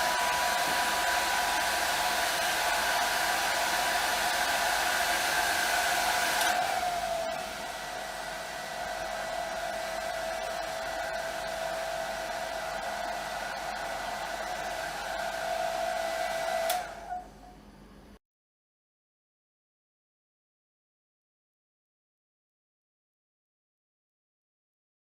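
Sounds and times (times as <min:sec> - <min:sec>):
hair dryer running: 0:00.0 - 0:17.4
hair dryer switch click: 0:06.2 - 0:06.7, 0:16.6 - 0:17.0.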